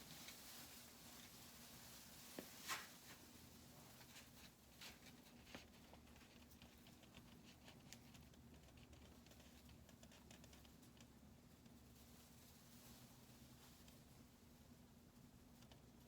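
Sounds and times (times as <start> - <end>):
faint small clicks and ticks: 4.8 - 12.1.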